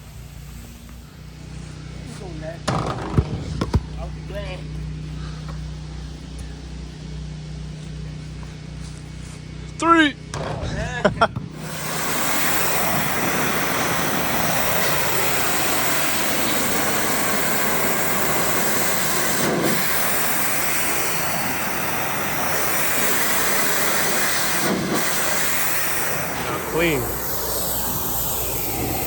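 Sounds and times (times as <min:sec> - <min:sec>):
pressure washer spraying: 0:11.6 - 0:29.0.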